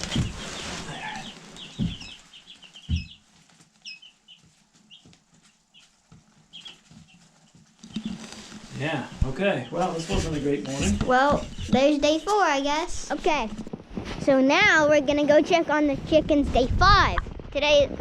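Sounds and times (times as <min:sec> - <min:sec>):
dull thumps: 0:00.0 - 0:03.3, 0:07.8 - 0:14.8
chicks peeping: 0:00.0 - 0:14.2.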